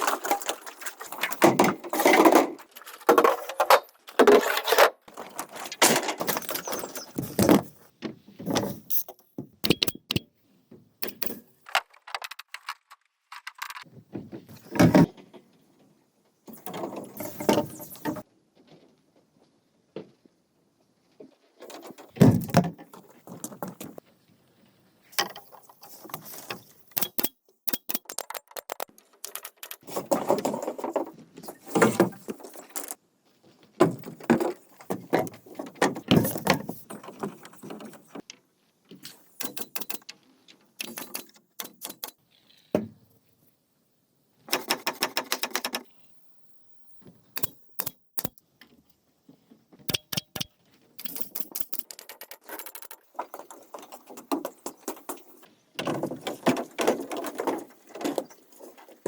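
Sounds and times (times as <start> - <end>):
bamboo knocking and scraping: 0.0 - 10.2.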